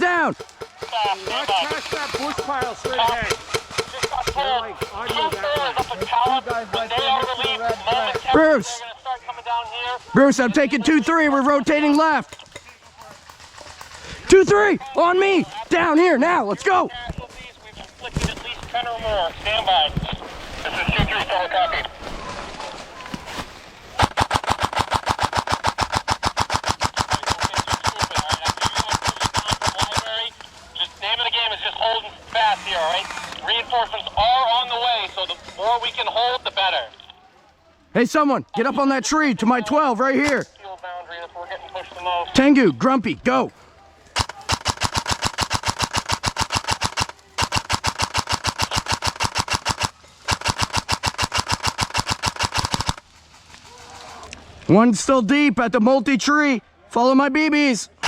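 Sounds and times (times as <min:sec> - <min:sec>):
airsoft gun full-auto burst: 0:00.4 - 0:08.7, 0:24.0 - 0:30.4, 0:44.2 - 0:54.3.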